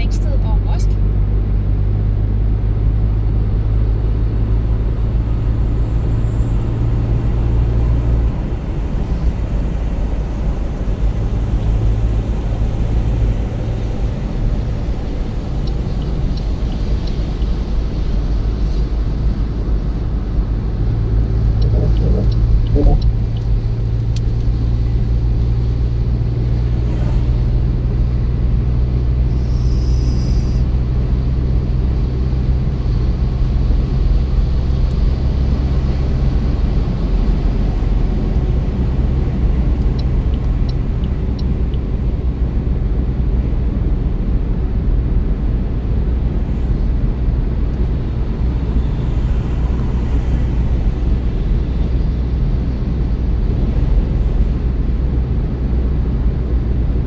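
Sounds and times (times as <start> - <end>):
car tyre and engine rumble: 0.0 - 57.0
low drone: 0.4 - 44.0.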